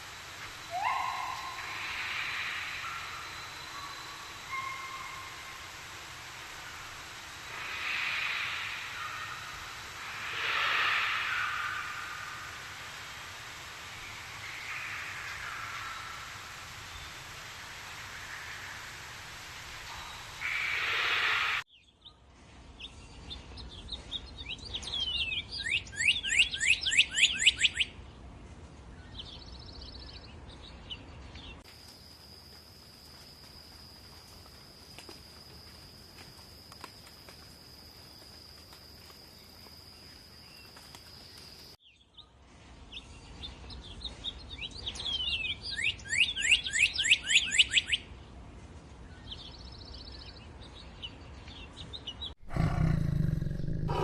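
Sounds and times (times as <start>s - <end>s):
hiss burst: 0.0s - 21.7s
bird whistling song: 0.6s - 5.6s, 24.5s - 27.9s, 44.6s - 48.1s.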